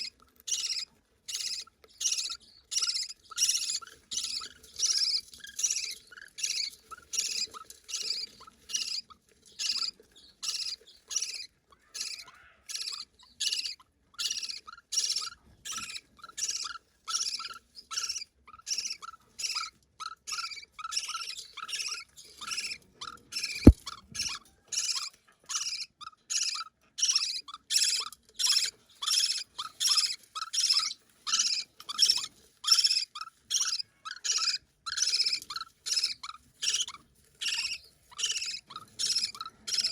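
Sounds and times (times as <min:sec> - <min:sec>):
budgerigar chick begging calls: 0:00.5 - 0:05.8.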